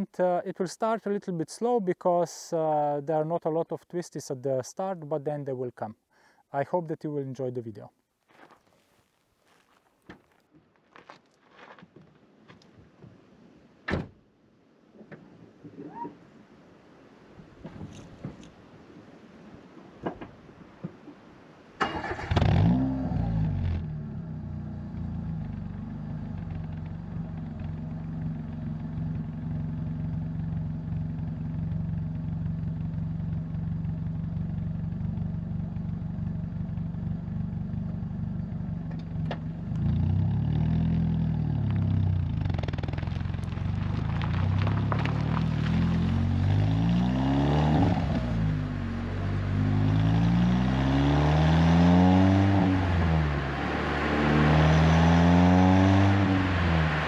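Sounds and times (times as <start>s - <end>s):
car engine revving through gears: 21.8s - 24.2s, 44.0s - 57.0s
car engine starting: 21.8s - 57.0s
car engine idling: 23.9s - 46.6s.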